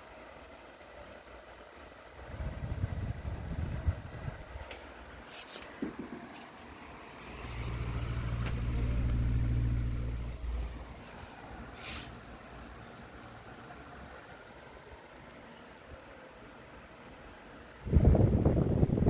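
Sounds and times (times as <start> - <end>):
electric fan motor humming: 2.1 - 5.2, 6.8 - 14.7, 17.8 - 19.0.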